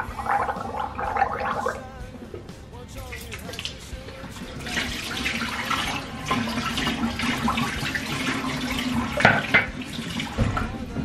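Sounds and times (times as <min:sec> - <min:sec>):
tap water running into sink: 0:00.0 - 0:11.0.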